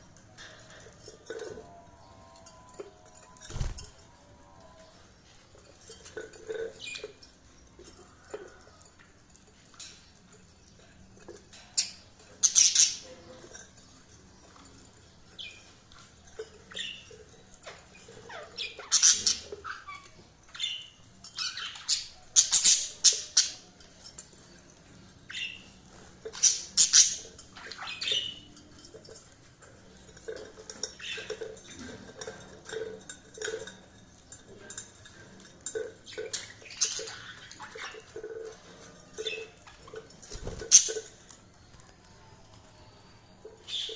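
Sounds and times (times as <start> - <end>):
budgerigars chirping and squawking: 11.8 - 13.5, 18.0 - 23.7, 25.2 - 28.5, 36.2 - 38.5.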